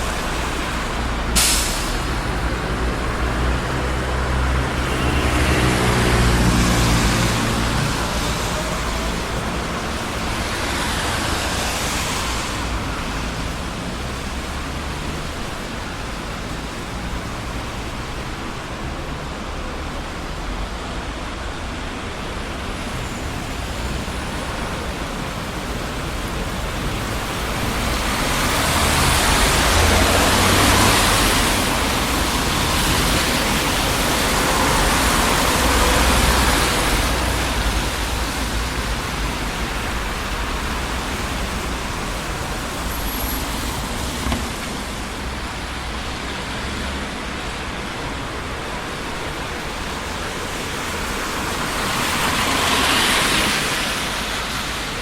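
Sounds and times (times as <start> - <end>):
city street traffic: 0.0 - 55.0.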